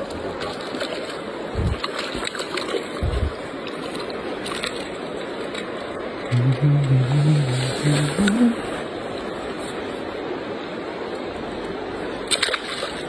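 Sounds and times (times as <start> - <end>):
water sloshing and splashing: 0.0 - 10.1, 12.0 - 13.0
dull low thumps: 1.5 - 1.8, 3.0 - 3.4.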